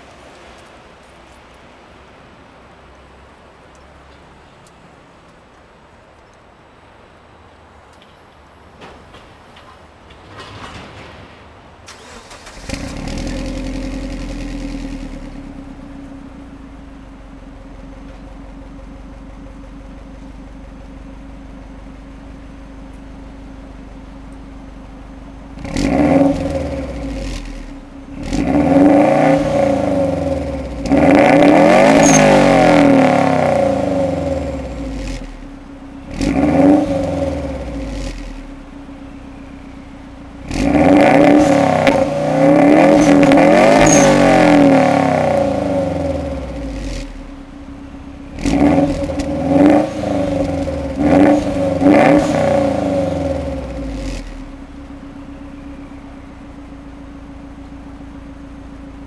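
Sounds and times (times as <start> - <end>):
car engine revving: 11.9 - 17.7, 25.2 - 56.2.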